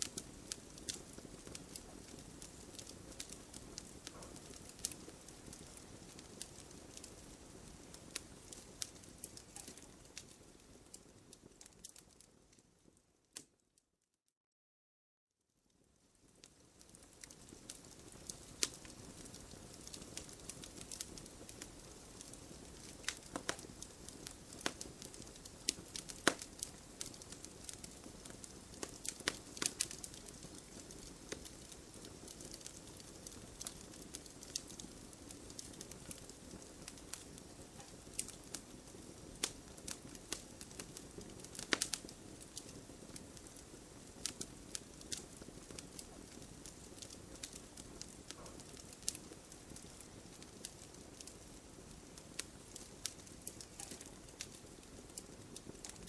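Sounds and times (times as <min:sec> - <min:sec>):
campfire crackling and popping: 0:00.0 - 0:13.6, 0:15.8 - 0:56.0
hiss of burning: 0:16.3 - 0:56.0.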